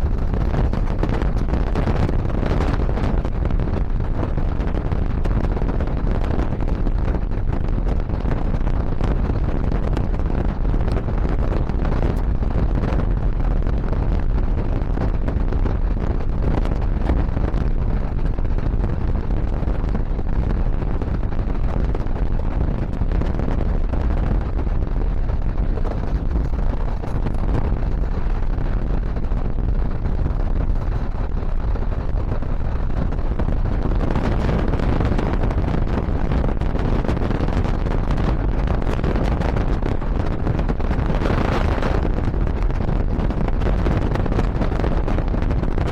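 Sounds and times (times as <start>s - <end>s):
moving train rumble: 0.0s - 45.1s
wind buffeting microphone: 0.0s - 45.9s.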